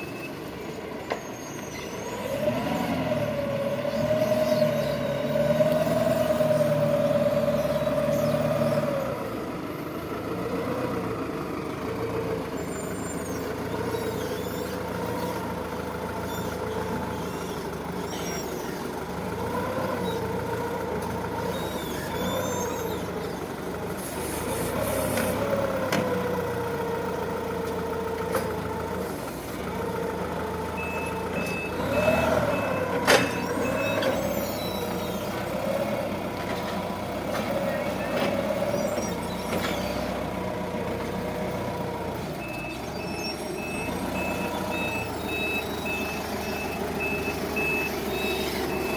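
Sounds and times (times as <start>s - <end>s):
forklift engine and hydraulic whine: 0.0s - 48.9s
reversing alarm beeps: 30.7s - 35.0s, 42.4s - 48.9s.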